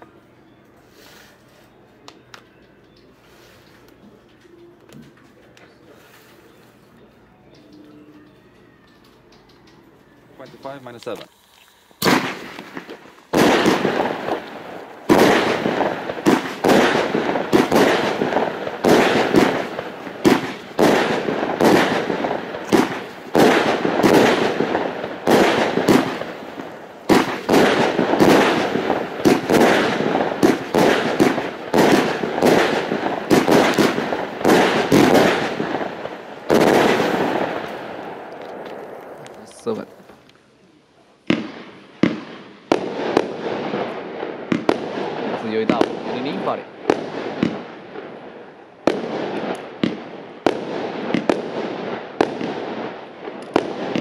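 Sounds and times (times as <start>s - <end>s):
fireworks hissing tails: 0.8s - 1.7s, 10.0s - 40.3s
fireworks launching and bursting: 10.4s - 40.3s, 41.2s - 54.0s.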